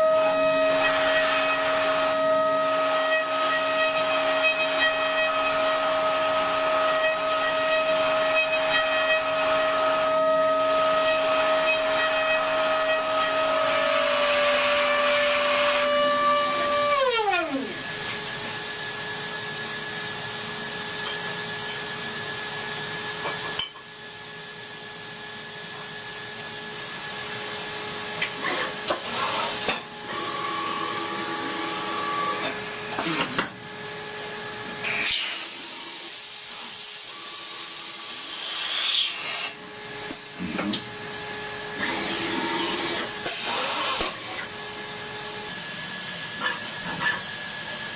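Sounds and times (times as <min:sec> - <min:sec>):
spindle motor whining: 0:39.5 - 0:47.8.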